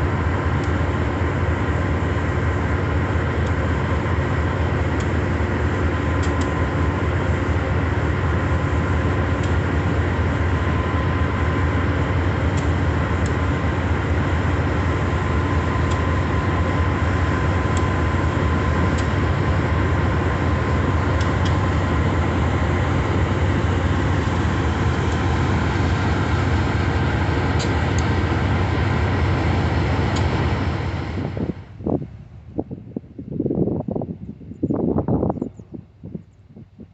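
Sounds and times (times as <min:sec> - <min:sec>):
train rumbling past: 0:00.0 - 0:36.9
wheels clicking on rails: 0:04.8 - 0:31.2.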